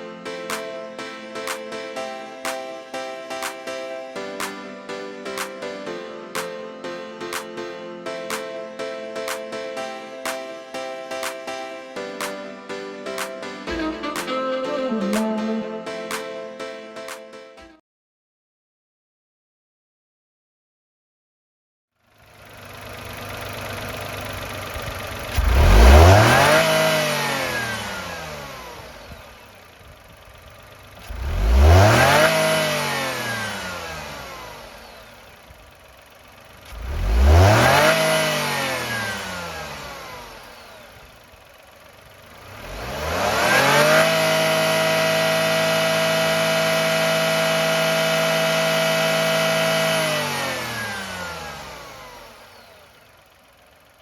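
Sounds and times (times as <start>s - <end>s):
engine revving and idling: 22.1s - 54.0s.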